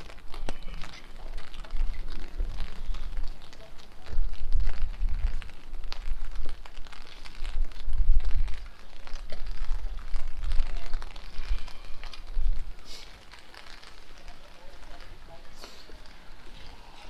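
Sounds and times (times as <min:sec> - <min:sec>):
wind buffeting microphone: 0:00.0 - 0:12.8
raindrops clicking close by: 0:00.0 - 0:17.0
steady rainfall: 0:00.0 - 0:17.0.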